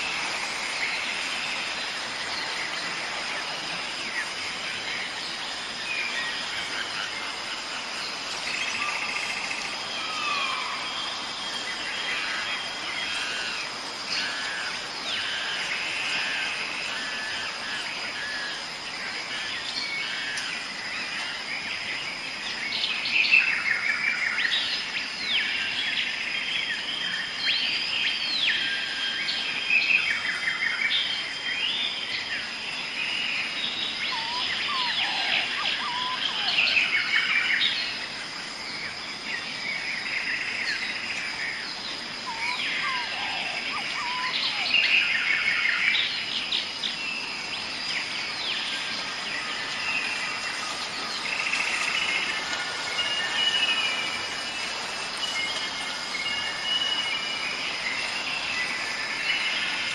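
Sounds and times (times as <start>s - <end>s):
birds chirping and trilling: 0.0s - 59.9s
insects droning: 0.0s - 59.9s
lower bird calls: 33.5s - 38.0s, 39.5s - 59.9s.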